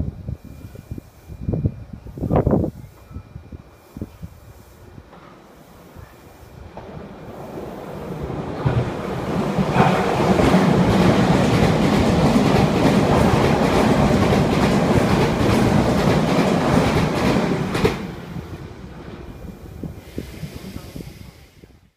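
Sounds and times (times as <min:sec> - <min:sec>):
train wheels clattering over rail joints: 0:08.6 - 0:18.2.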